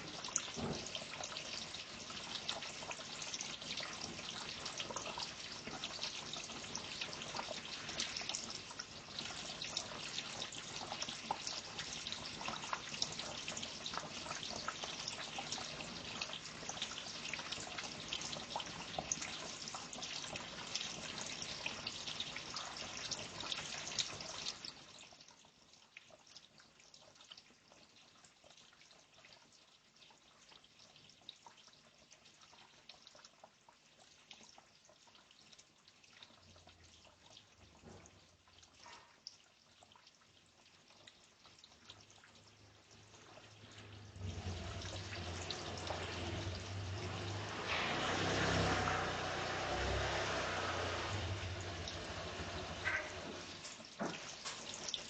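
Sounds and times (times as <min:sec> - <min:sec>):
water trickling and dripping: 0:00.0 - 0:55.0.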